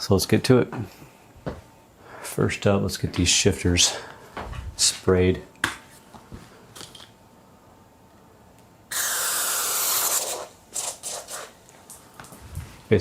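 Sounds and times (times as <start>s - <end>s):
aerosol spray hissing: 8.9s - 11.5s
short aerosol squirts: 8.9s - 11.6s.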